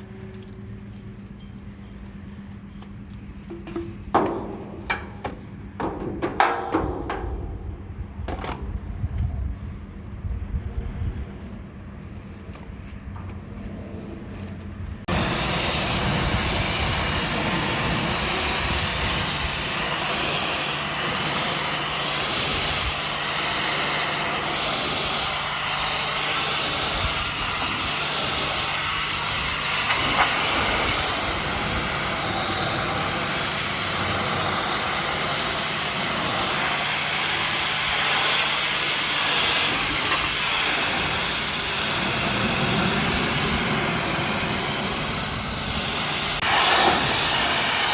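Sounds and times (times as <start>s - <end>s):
pressure washer pump hum: 0.0s - 10.5s, 12.0s - 47.9s
water jet hissing on metal: 15.1s - 47.9s.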